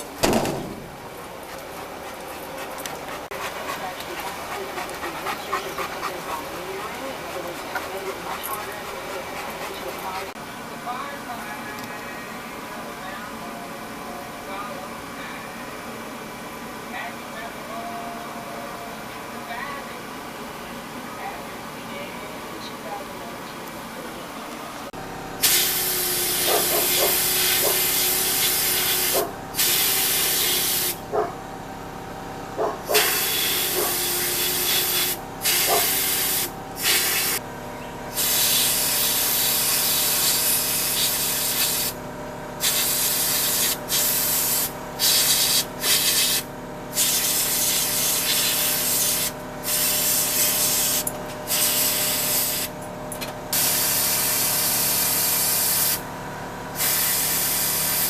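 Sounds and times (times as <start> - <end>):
steady machine hum: 0.0 - 58.0
hissing air spray bursts: 25.4 - 31.0, 32.9 - 37.4, 38.1 - 42.0, 42.6 - 52.7, 53.6 - 56.0, 56.8 - 58.0.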